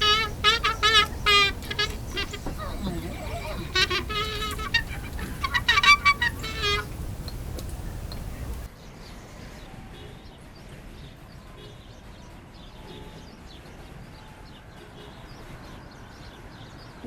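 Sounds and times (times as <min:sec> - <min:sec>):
outdoor background hum: 0:00.0 - 0:08.7
small birds chirping: 0:00.0 - 0:08.7.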